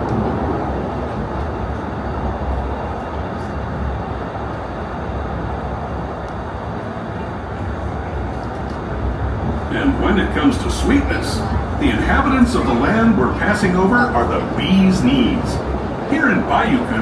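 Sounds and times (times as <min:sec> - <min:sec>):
steam train rumbling along track: 0:00.0 - 0:17.0.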